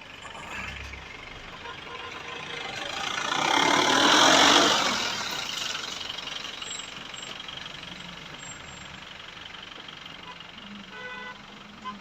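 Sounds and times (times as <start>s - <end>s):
vehicle passing by: 2.2s - 5.8s.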